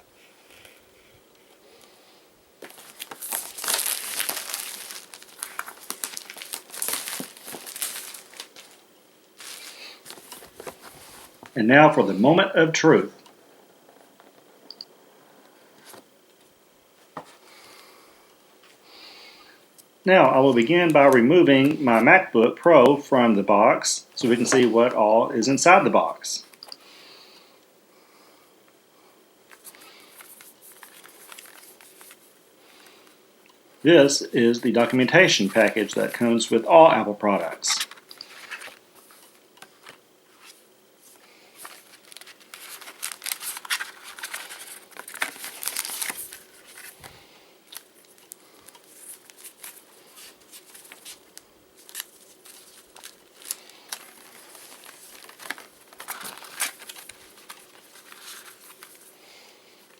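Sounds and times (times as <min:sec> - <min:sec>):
packaging rustling: 0:02.6 - 0:08.8, 0:09.4 - 0:11.5, 0:29.5 - 0:32.9, 0:37.4 - 0:59.9
plastic wrap crinkling and tearing: 0:02.6 - 0:08.8, 0:09.4 - 0:11.3, 0:29.6 - 0:32.2, 0:37.7 - 0:40.0, 0:41.6 - 0:47.1, 0:47.7 - 0:59.2.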